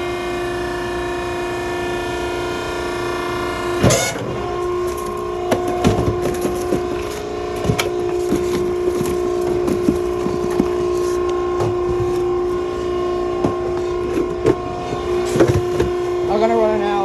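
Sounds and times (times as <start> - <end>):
baler machinery humming: 0.0 - 17.0
loud clatter: 3.8 - 16.3.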